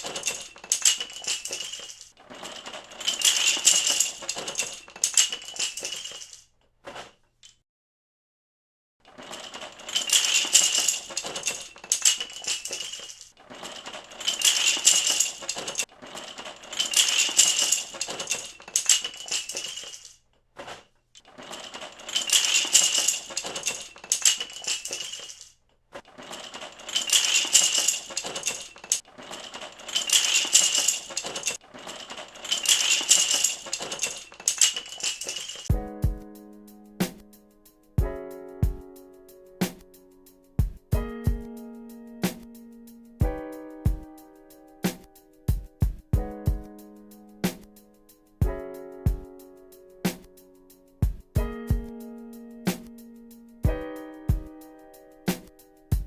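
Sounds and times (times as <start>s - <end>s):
plastic pieces clattering: 0.0s - 7.6s, 9.0s - 35.7s.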